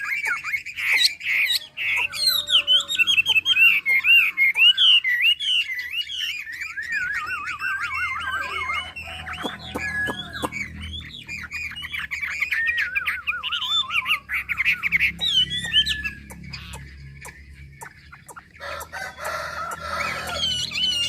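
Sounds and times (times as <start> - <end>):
songbird whistling and trilling: 0.0 - 21.0
rooster crowing: 1.6 - 3.4, 8.4 - 10.6, 18.6 - 21.0.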